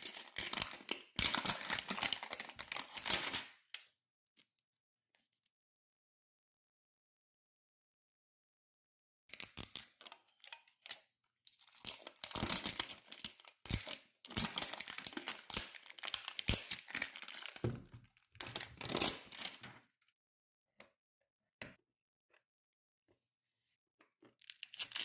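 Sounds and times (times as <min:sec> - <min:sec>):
plastic packaging crinkling: 0:00.0 - 0:03.4, 0:11.6 - 0:19.7, 0:24.4 - 0:25.0
plastic packaging tearing: 0:00.0 - 0:03.5, 0:11.7 - 0:17.6, 0:18.4 - 0:19.7, 0:24.4 - 0:25.0.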